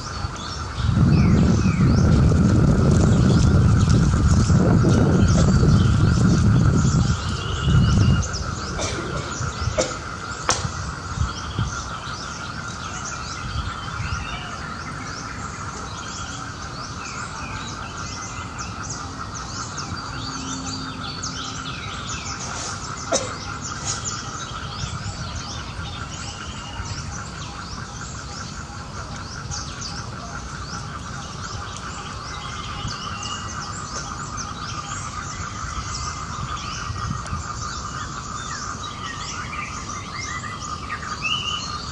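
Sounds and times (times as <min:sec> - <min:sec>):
low rumbles: 0:00.0 - 0:12.3
high-pitched droning hum: 0:00.0 - 0:41.9
small birds chirping: 0:00.0 - 0:41.9.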